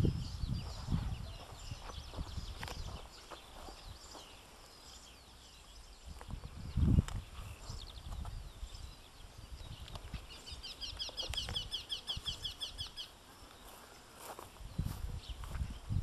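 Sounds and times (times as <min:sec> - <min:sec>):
low microphone rumbles: 0:00.0 - 0:03.1, 0:06.1 - 0:10.6
songbird repeated high chirps: 0:00.0 - 0:13.8.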